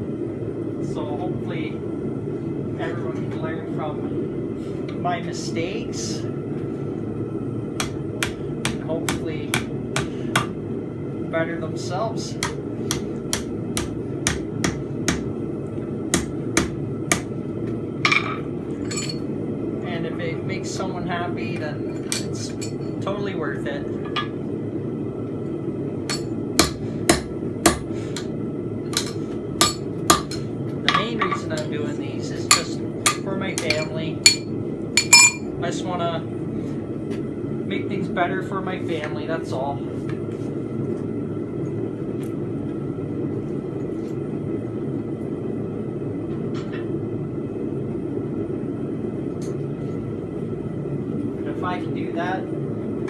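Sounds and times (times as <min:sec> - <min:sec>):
hammer striking steel on anvil: 0:07.8 - 0:10.6, 0:12.4 - 0:15.3, 0:16.2 - 0:17.3, 0:26.1 - 0:28.3, 0:28.9 - 0:31.7, 0:32.5 - 0:35.5.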